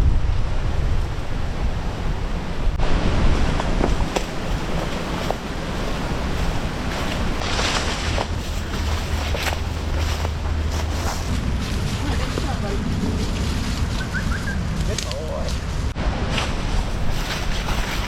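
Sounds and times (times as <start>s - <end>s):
wind rumbling on microphone: 0.0s - 18.0s
waves washing onto beach: 2.8s - 9.8s.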